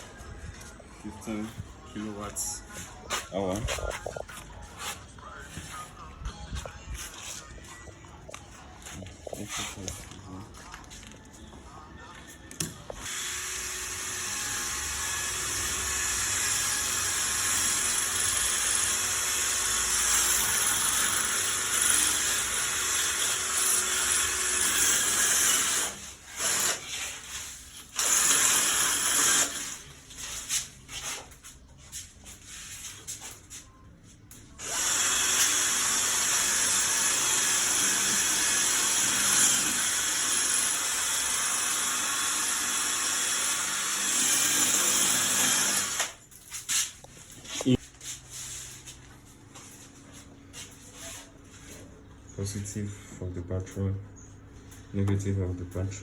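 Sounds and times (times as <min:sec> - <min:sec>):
power tool running: 0:13.0 - 0:27.0, 0:28.0 - 0:29.8, 0:34.6 - 0:46.2.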